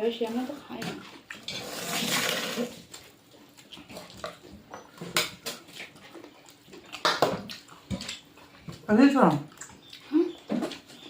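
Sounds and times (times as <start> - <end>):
eating clicks and smacks: 3.5 - 11.0.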